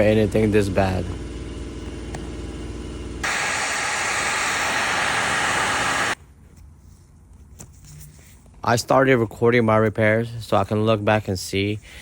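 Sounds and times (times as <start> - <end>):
low mechanical hum: 0.0 - 12.0
loud rushing air hiss: 3.2 - 6.2.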